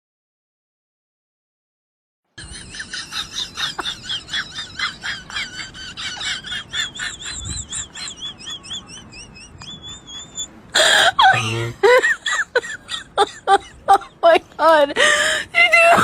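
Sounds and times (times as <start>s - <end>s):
high-pitched chirping trill: 6.7s - 10.5s.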